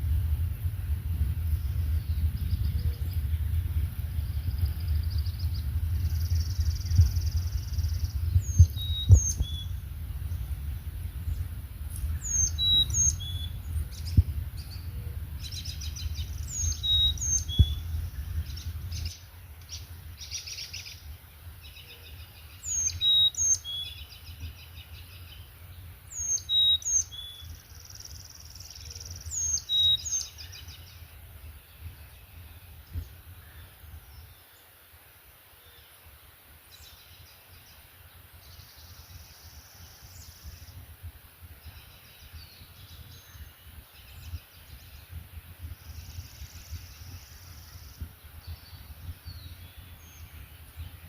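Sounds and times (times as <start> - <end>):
low rumble: 0.0 - 21.1
songbirds singing: 0.0 - 51.0
bird trills: 12.2 - 13.6.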